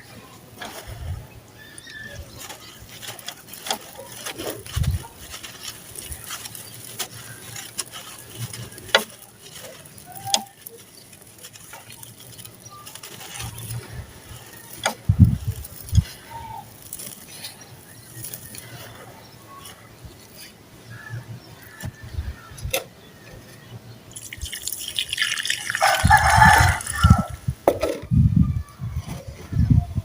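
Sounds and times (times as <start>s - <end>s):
sand-cement chunks crunching: 0.4s - 22.5s, 24.1s - 27.8s.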